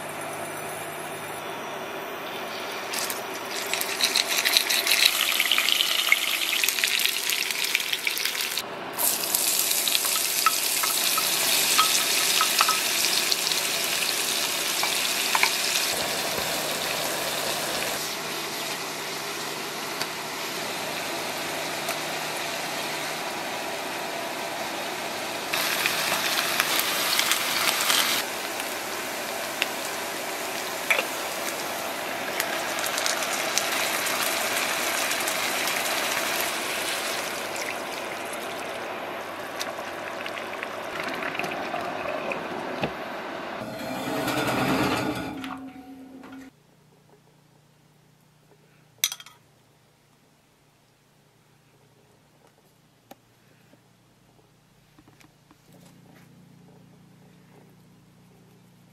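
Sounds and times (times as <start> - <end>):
food sizzling in hot oil: 2.9 - 23.4, 25.5 - 38.9.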